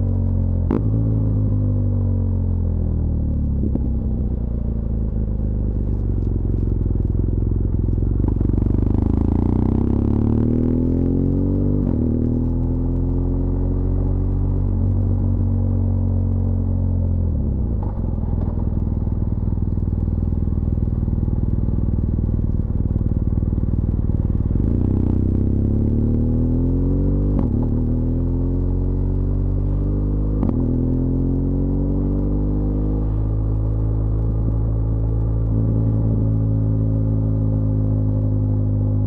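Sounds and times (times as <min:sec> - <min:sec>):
motorcycle engine revving: 0:07.3 - 0:15.5.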